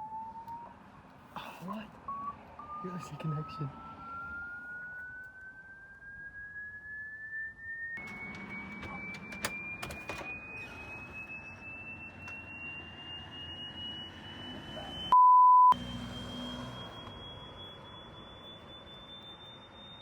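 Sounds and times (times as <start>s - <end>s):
censor bleep: 8.0s - 20.0s
high electronic tone gliding upward: 10.4s - 20.0s.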